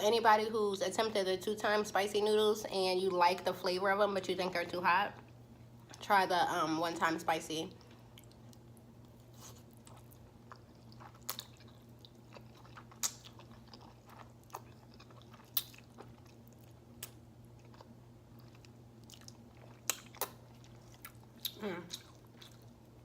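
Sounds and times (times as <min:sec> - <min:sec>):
steady low hum: 0:00.0 - 0:23.0
person chewing noodles: 0:07.8 - 0:23.0.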